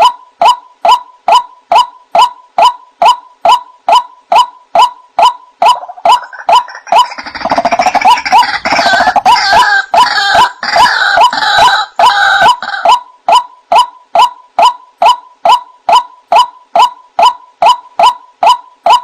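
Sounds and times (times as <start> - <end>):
bird croaking calls: 5.6 - 13.0.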